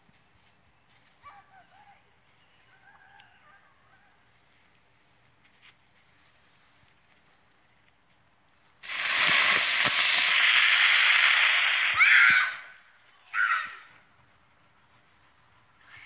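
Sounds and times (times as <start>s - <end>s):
firework spraying sparks hissing: 8.8s - 12.7s.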